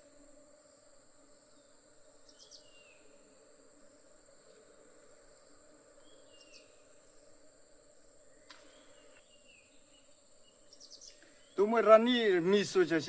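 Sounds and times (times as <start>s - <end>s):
insect trilling: 11.6s - 13.0s.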